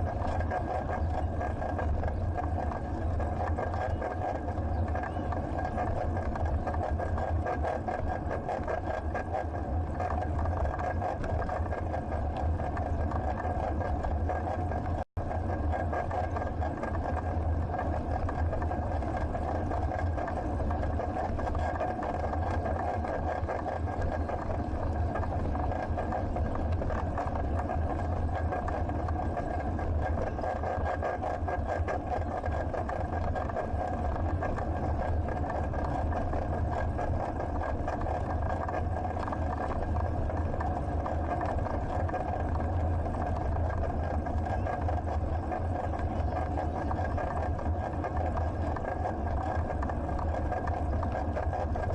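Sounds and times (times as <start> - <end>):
even hum: 0.0 - 51.9.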